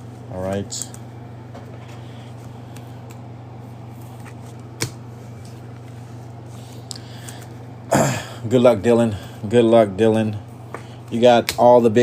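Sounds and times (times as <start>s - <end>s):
handling trading cards: 0.0s - 7.7s
steady low hum: 0.0s - 12.0s.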